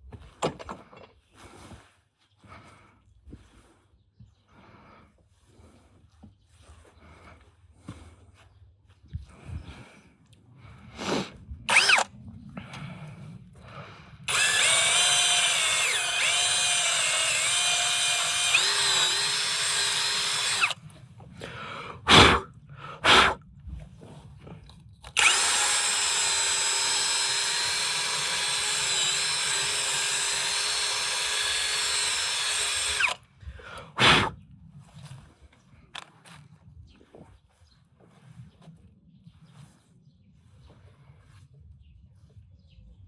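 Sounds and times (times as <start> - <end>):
electric drill motor whine: 11.7 - 12.1, 14.3 - 20.8, 25.0 - 33.2.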